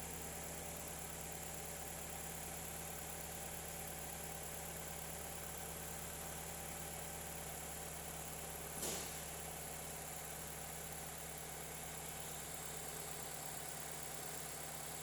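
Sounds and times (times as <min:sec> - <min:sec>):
car engine idling: 0:00.0 - 0:15.0
brief sharp click: 0:08.8 - 0:09.2.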